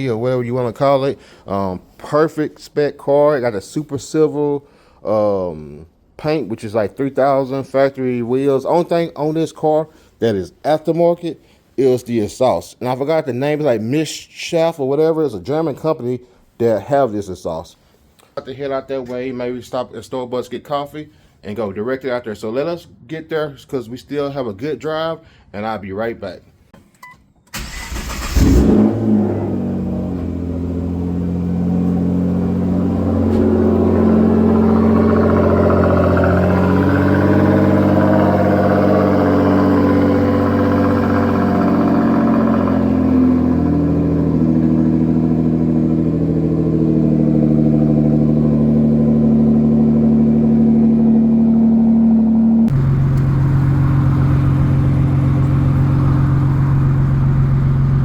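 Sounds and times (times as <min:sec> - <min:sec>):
car engine running: 0:28.1 - 0:58.0.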